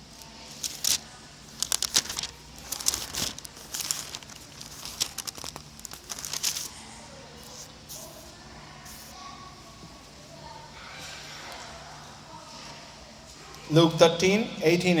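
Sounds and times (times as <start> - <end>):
paper pages rustling: 0.2 - 6.8.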